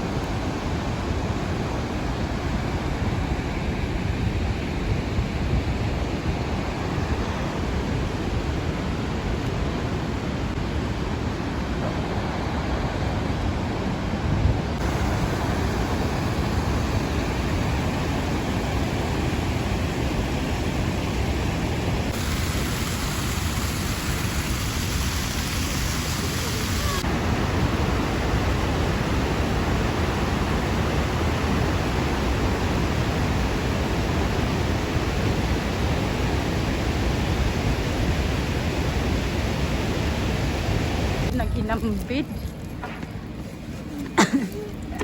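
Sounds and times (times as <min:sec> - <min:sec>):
waterfall roaring: 0:05.7 - 0:41.4.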